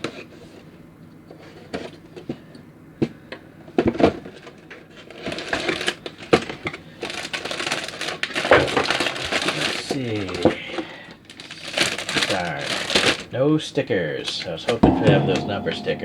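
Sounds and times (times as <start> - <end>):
packaging rustling: 7.0 - 10.4, 11.3 - 13.2.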